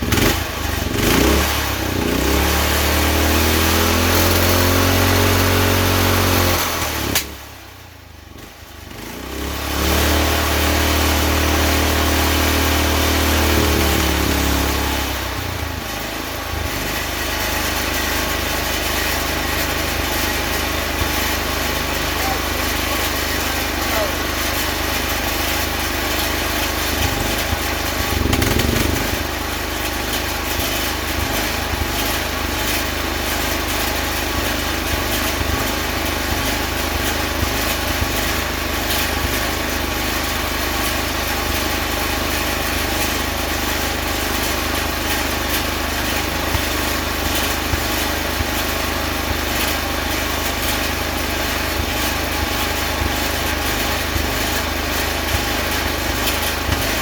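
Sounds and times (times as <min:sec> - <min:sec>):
electric welding buzzing crackle: 0:08.9 - 0:57.0.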